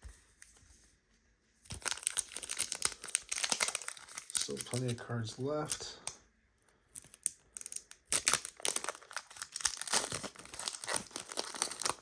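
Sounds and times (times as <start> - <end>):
foil wrapper crinkling and tearing: 1.6 - 6.1, 6.9 - 12.0.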